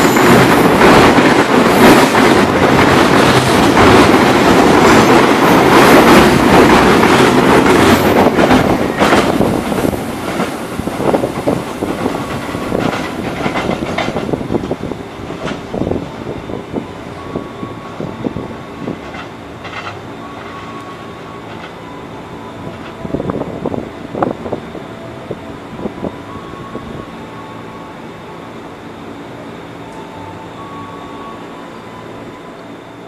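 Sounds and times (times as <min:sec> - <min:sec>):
wheels clicking over rail joints: 0:00.0 - 0:15.8, 0:18.8 - 0:20.9.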